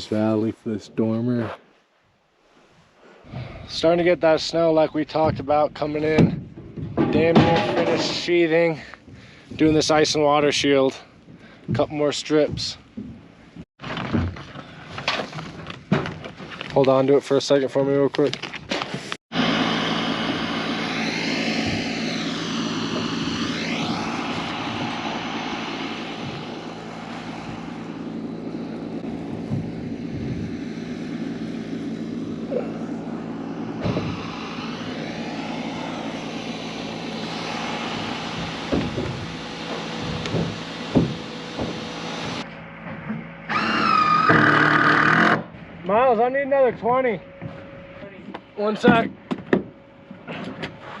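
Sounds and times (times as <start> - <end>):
engine drone: 6.8 - 11.8, 19.0 - 51.0.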